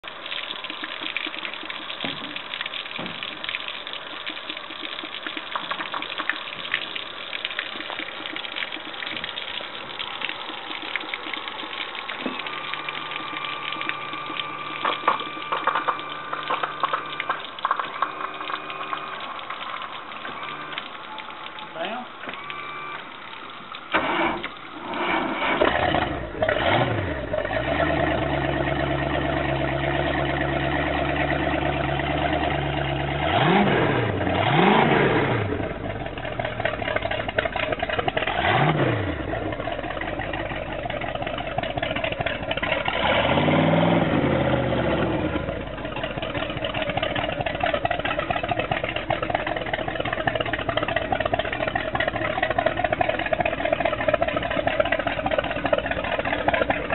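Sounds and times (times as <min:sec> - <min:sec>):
boat engine starting and idling: 0:00.0 - 0:56.9
engine revving: 0:24.0 - 0:36.0, 0:38.2 - 0:39.6, 0:42.6 - 0:45.8.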